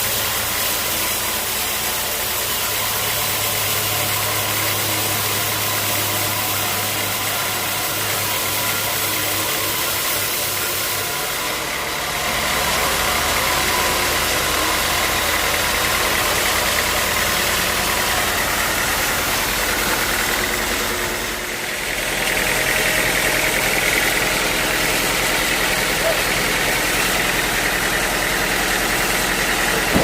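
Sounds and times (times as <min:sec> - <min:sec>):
sawmill engine drone: 0:00.0 - 0:30.0
sawmill whine: 0:00.0 - 0:30.0.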